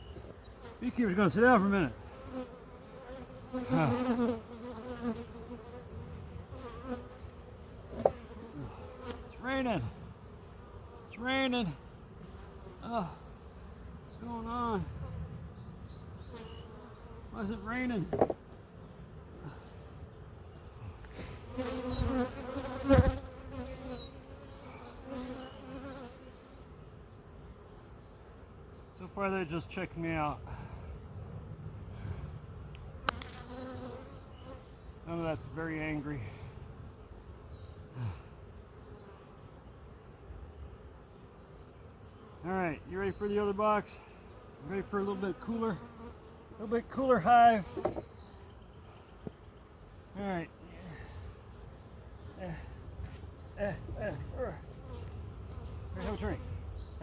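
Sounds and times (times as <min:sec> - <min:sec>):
honeybees buzzing: 0:00.0 - 0:57.0.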